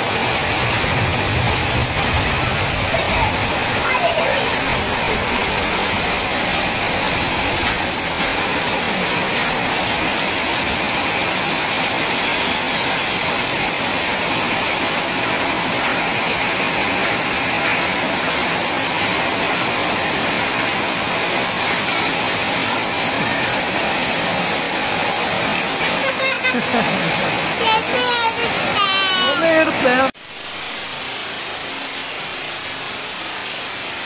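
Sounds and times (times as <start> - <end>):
heavy rain: 0.0 - 34.0
runoff streaming off roof: 0.0 - 34.0.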